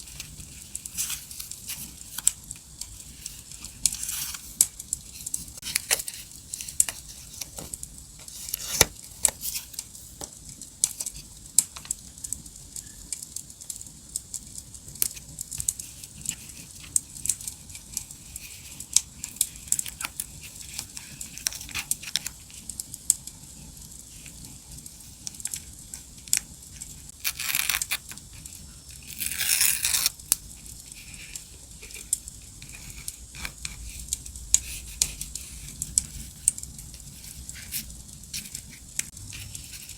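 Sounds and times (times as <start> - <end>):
paper tearing: 27.2 - 28.2, 29.0 - 30.2.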